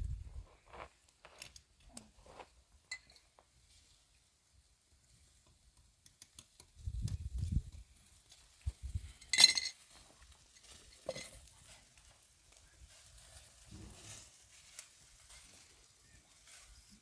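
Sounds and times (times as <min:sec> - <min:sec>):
hard objects clinking: 0:09.2 - 0:09.9.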